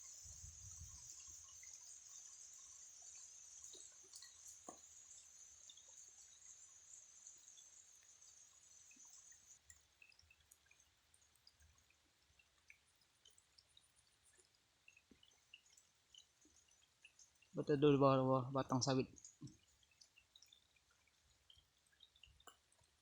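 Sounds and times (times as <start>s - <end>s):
steady high-pitched hiss: 0.0s - 10.2s, 14.3s - 20.5s
raindrops dripping: 0.0s - 23.0s.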